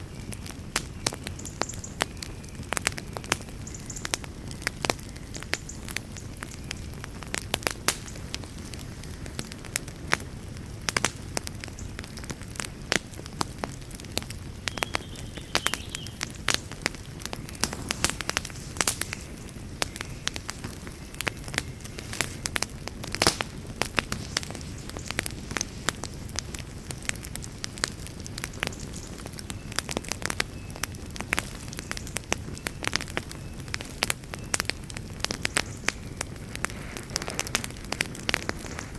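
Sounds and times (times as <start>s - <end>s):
wood campfire crackling: 0.0s - 38.9s
low fire rush: 16.1s - 28.7s, 36.2s - 38.9s.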